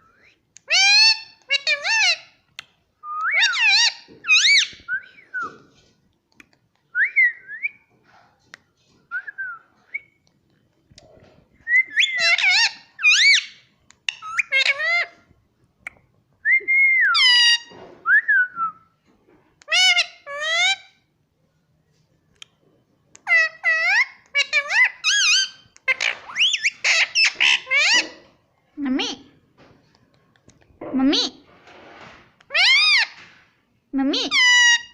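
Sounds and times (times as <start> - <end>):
parrot whistling and calling: 3.2 - 5.6, 11.7 - 15.2, 23.3 - 28.2.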